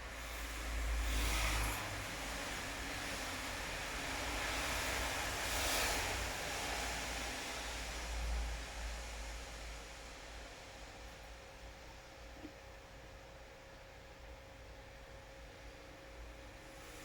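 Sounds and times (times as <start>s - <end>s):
steady rain hiss: 0.0s - 12.1s, 16.0s - 17.0s.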